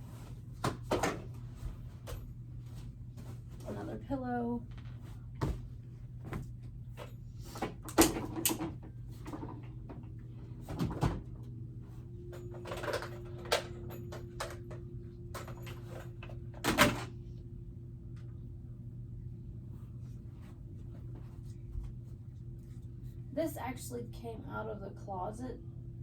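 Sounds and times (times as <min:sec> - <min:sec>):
steady low hum: 0:00.0 - 0:26.0
toys and objects clattering: 0:12.4 - 0:14.8.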